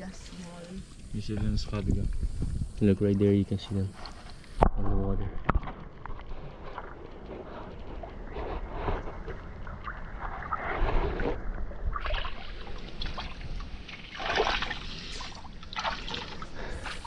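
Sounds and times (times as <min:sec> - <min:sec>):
seawater splashing and sloshing: 0:05.4 - 0:17.0.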